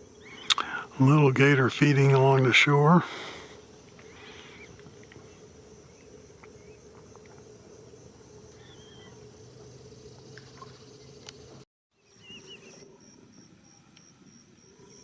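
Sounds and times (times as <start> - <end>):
faint bird chirps: 0.1 - 0.8, 4.0 - 6.8, 8.5 - 9.2, 9.9 - 14.0
bird trill: 8.6 - 9.2, 12.0 - 12.9.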